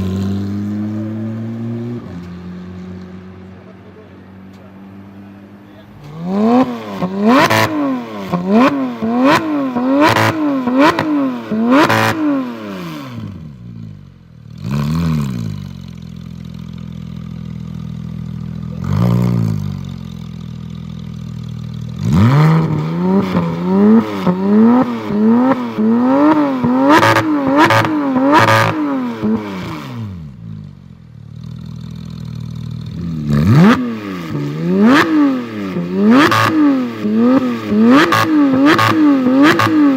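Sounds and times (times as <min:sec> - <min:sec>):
car engine revving: 0:00.0 - 0:39.9
car engine idling: 0:13.2 - 0:33.7.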